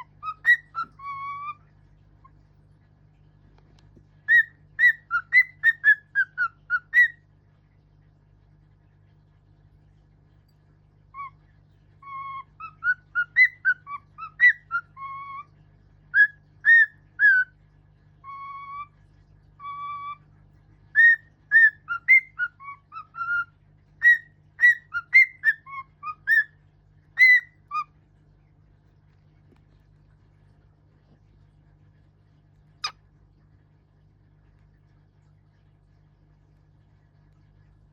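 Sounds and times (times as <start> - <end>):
bird whistling a melody: 0.0 - 1.6, 4.3 - 7.2, 12.0 - 15.5, 16.1 - 17.5, 18.2 - 19.0, 19.6 - 20.2, 20.9 - 26.6, 27.2 - 27.9.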